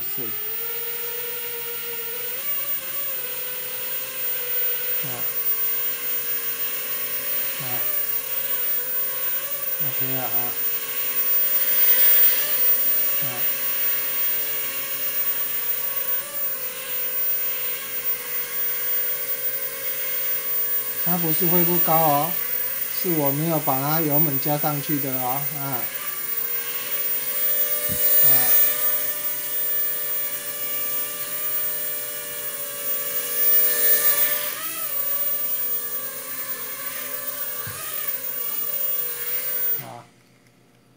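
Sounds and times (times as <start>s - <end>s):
toy drone propellers whining: 0.0s - 40.0s.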